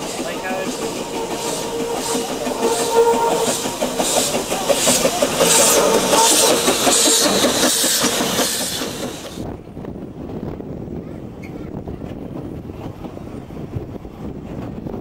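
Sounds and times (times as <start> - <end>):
wheels clattering on rails: 0.0 - 9.5
steam locomotive exhaust chuffing: 0.0 - 9.6.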